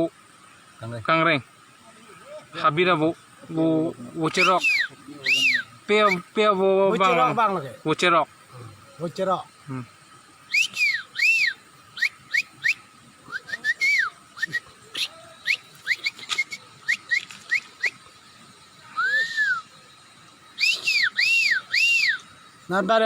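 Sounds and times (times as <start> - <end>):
long rising and falling whistle: 4.4 - 6.2, 10.5 - 18.0, 18.9 - 19.8, 20.6 - 22.3
short whistled chirps: 4.4 - 6.3, 10.4 - 18.2, 18.9 - 19.8, 20.5 - 22.6.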